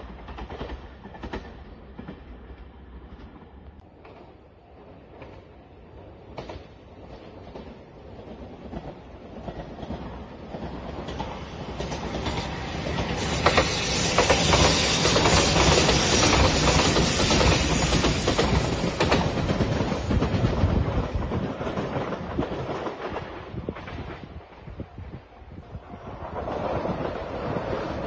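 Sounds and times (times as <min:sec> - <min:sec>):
electric train passing: 0:00.0 - 0:28.0
high hiss: 0:12.7 - 0:19.1.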